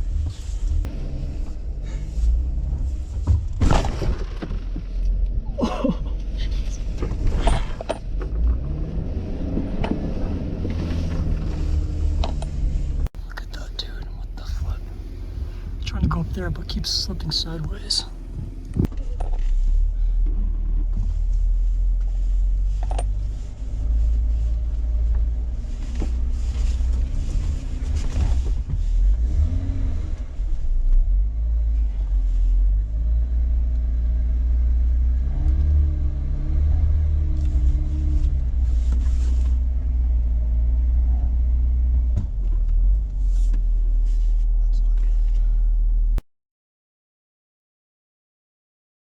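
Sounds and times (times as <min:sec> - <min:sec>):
car engine revving: 0:06.5 - 0:18.9, 0:20.4 - 0:45.4.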